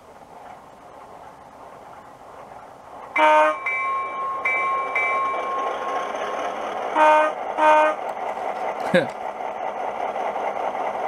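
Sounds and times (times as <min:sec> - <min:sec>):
weak diesel horn blasts: 0:03.2 - 0:03.6, 0:07.0 - 0:08.0.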